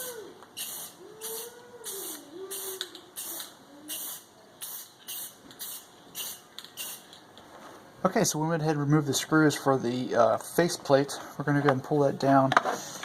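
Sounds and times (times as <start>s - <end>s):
spray paint can hissing: 0.6s - 7.2s.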